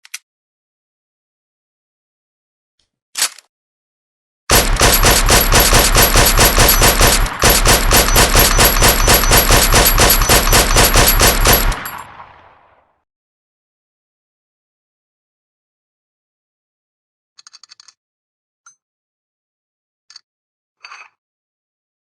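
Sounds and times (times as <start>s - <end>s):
suppressed rifle automatic fire: 4.5s - 12.7s.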